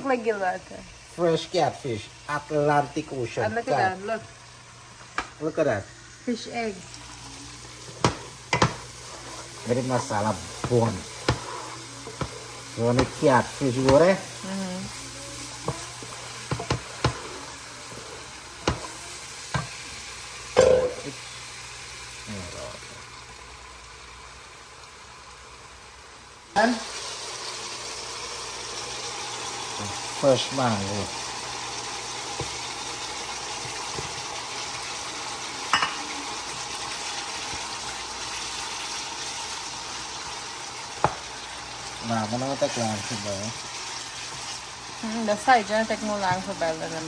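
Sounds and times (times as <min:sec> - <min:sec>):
fish sizzling in a pot: 0:00.0 - 0:47.0.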